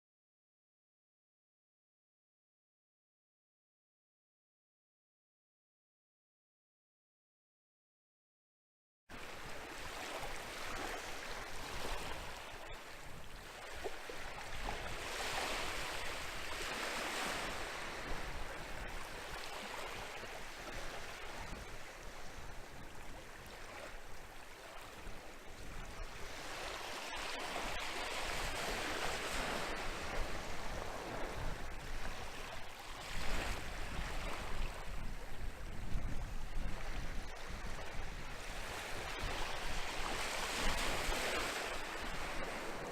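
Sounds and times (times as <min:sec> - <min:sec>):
waves breaking on beach: 0:09.1 - 0:42.9
wind: 0:09.1 - 0:42.9.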